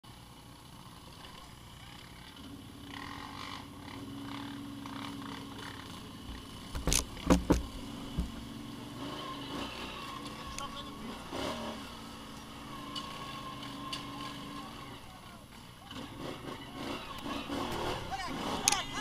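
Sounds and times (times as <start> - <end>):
vehicle engine idling: 0.0 - 19.0
sharp knocks: 6.7 - 8.4.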